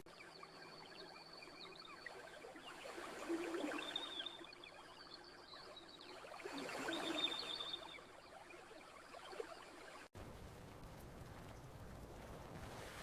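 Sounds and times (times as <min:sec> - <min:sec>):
campfire crackling: 0:10.2 - 0:13.0.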